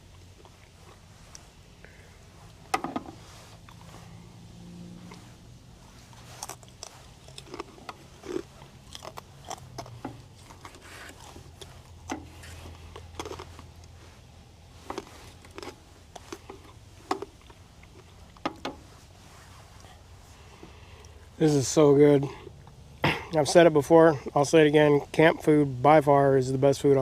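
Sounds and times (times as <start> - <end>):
person chewing crunchy food: 0.0 - 4.2, 5.0 - 21.4
low steady hum: 0.0 - 27.0.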